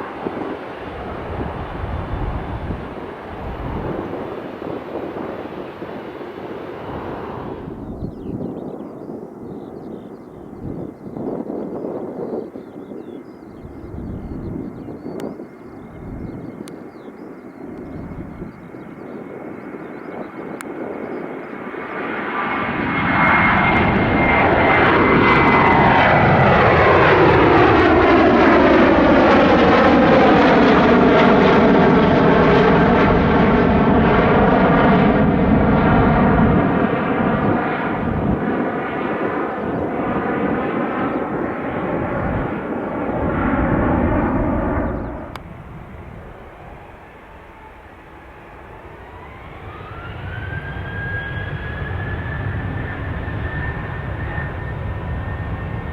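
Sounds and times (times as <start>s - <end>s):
phasing hiss of passing aircraft: 0.0s - 7.8s
jet engines rumbling: 0.0s - 55.9s.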